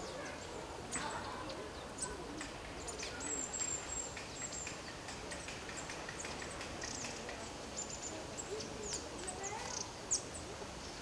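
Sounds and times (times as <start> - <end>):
birds chirping: 2.8 - 11.0.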